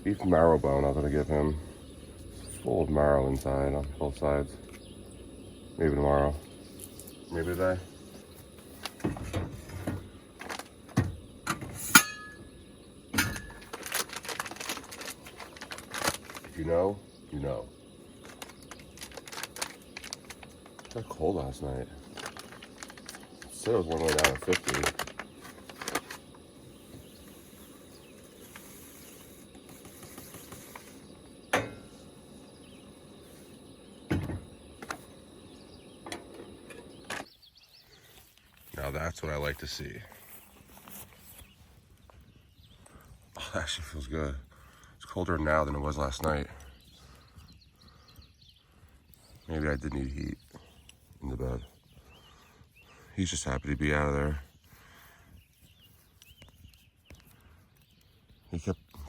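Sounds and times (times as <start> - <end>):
steady low hiss: 0.0 - 59.0
objects knocking and thumping: 8.9 - 12.2, 34.1 - 35.0
sharp metallic clink: 11.8 - 12.5.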